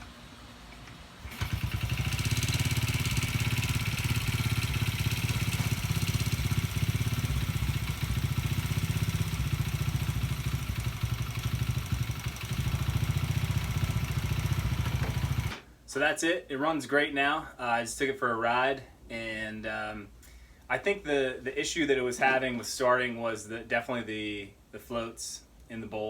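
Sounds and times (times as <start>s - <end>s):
small motorcycle engine running: 1.2s - 15.6s.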